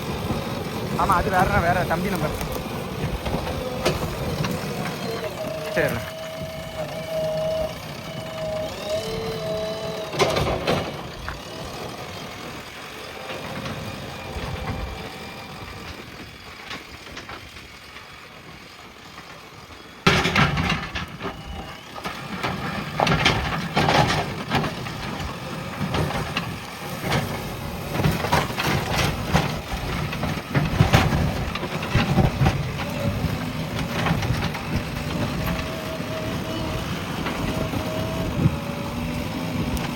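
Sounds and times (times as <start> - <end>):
backhoe diesel engine running: 0.0 - 39.9
knocks and clanks: 0.2 - 9.4, 20.1 - 38.5.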